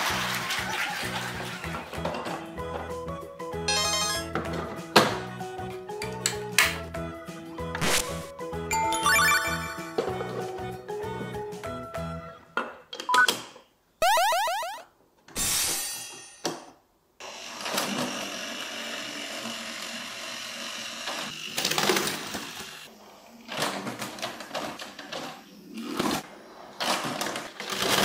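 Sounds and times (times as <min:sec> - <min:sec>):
toy train motor whirring: 0:17.2 - 0:26.2
toy train rattling over track: 0:17.5 - 0:28.0.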